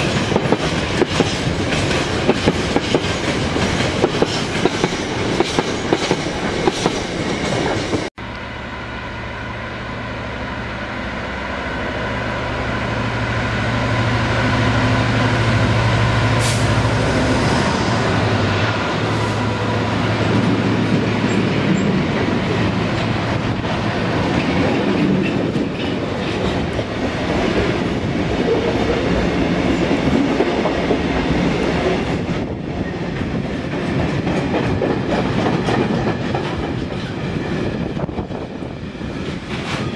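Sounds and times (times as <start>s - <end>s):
train wheels clicking over rail joints: 0.0s - 8.1s, 33.1s - 39.9s
freight train rumbling past: 0.0s - 39.9s
low locomotive engine hum: 6.0s - 39.9s.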